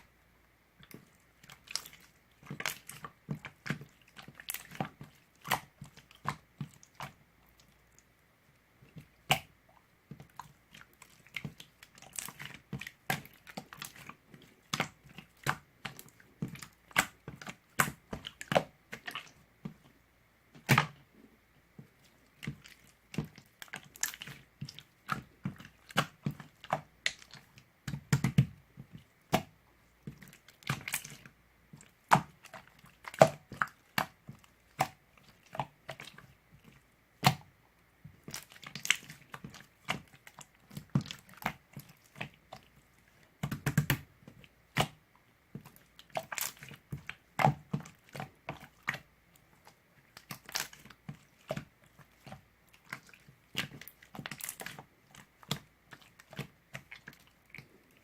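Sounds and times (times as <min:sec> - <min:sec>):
close-up clicks taps and crunches: 0:21.8 - 0:37.5, 0:38.1 - 0:58.0.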